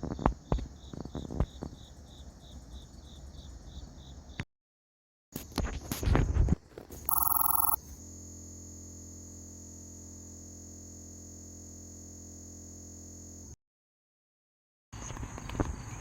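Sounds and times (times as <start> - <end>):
short electronic beep: 7.1 - 7.8.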